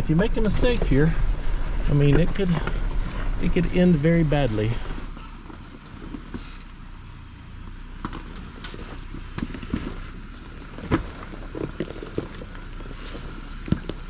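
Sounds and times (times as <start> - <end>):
knocks and clunks: 0.0 - 6.6
engine and road rumble: 0.0 - 14.0.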